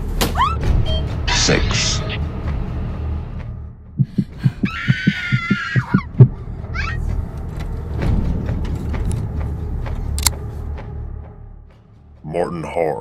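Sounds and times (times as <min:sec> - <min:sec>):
dull thumps: 0:04.0 - 0:06.4.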